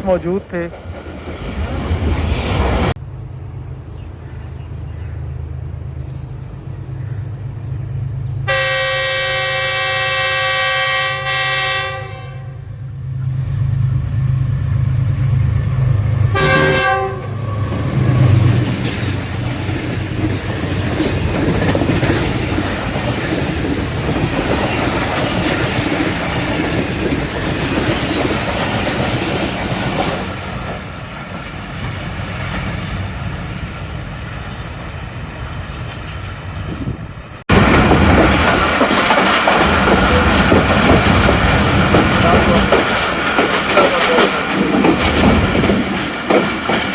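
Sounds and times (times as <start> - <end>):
locomotive horn blasts: 8.5 - 12.8, 16.2 - 18.0
locomotive engine rumble: 12.6 - 46.9
train wheels clattering on rails: 15.1 - 46.9.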